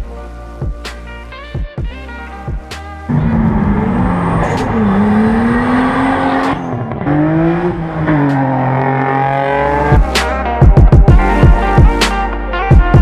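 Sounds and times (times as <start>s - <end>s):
car engine revving: 3.0s - 10.3s.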